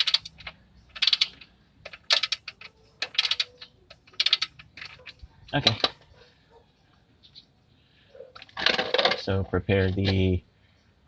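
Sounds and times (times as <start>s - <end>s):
ratchet wrench clicking: 0.0s - 4.7s.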